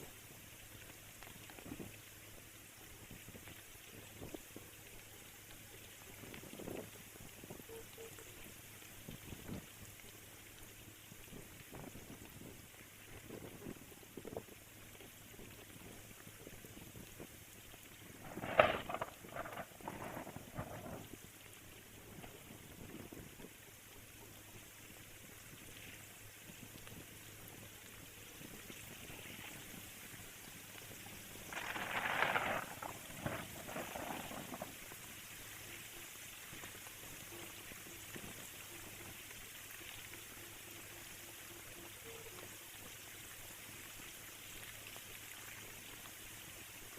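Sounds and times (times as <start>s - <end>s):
rain pattering: 0.0s - 46.9s
small drips: 0.0s - 46.9s
heavy rain falling: 18.2s - 21.0s, 31.3s - 35.1s.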